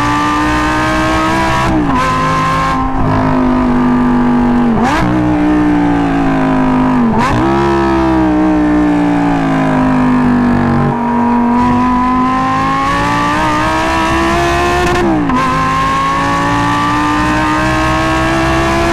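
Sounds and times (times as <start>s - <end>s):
sports car engine revving: 0.0s - 18.9s.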